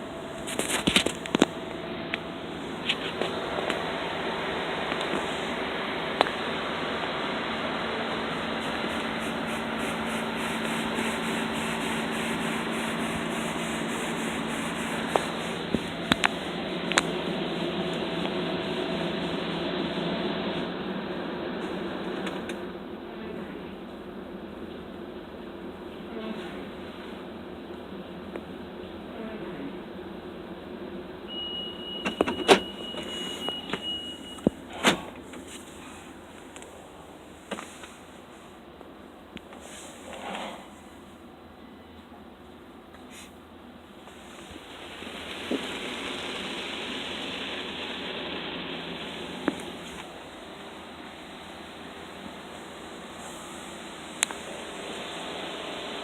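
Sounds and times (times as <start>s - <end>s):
car wash spraying and scrubbing: 0.0s - 22.7s, 31.3s - 38.7s, 43.0s - 56.0s
low hum: 0.0s - 31.3s
power window motor running: 0.9s - 20.8s
steady high beep: 31.3s - 34.5s.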